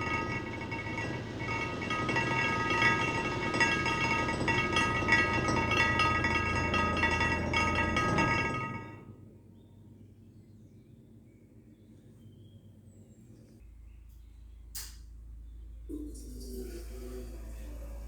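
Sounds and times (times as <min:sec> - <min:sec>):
bell-like clinking tones: 0:00.0 - 0:09.1
low hum: 0:00.0 - 0:09.2.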